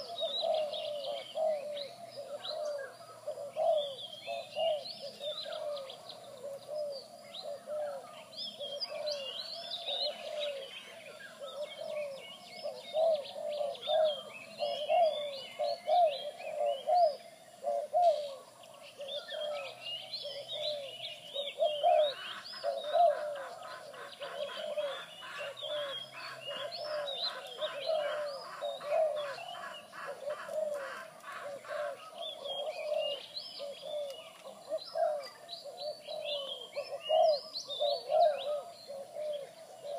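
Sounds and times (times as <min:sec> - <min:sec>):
doves cooing: 0:00.0 - 0:39.9
small birds chirping: 0:00.0 - 0:39.9.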